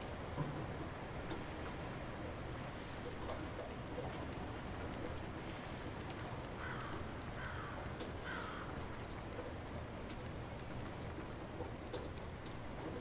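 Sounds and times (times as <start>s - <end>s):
light rain falling: 0.0s - 13.0s.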